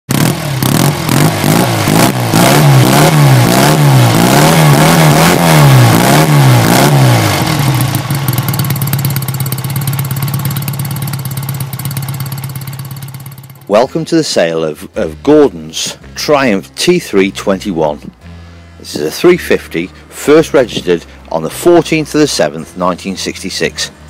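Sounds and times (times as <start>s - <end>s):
motorcycle engine revving and idling: 0.1s - 24.0s.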